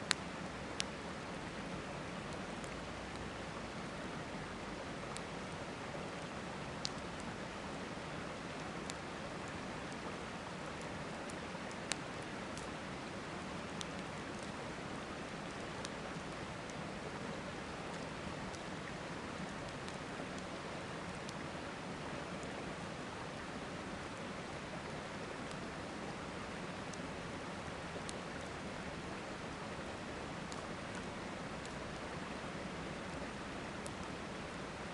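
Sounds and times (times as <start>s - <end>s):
campfire crackling and popping: 6.1s - 7.3s, 10.8s - 14.6s.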